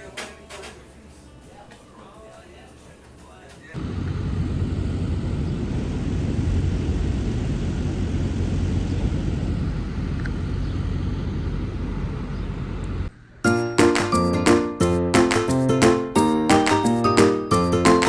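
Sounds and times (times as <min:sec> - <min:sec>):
diesel truck engine running: 0:03.8 - 0:13.1.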